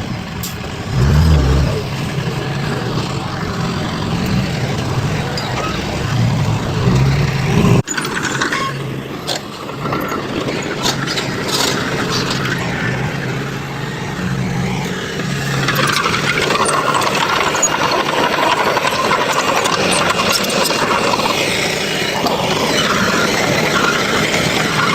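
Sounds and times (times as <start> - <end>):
heavy diesel machinery droning: 0.0 - 7.8.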